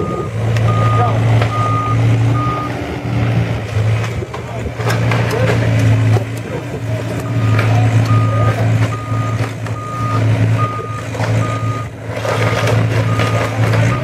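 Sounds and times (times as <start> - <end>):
backup alarm beeping: 0.0 - 2.7, 7.2 - 11.9
diesel equipment droning: 0.0 - 14.0
knocks and clatter: 3.7 - 10.4, 11.0 - 14.0.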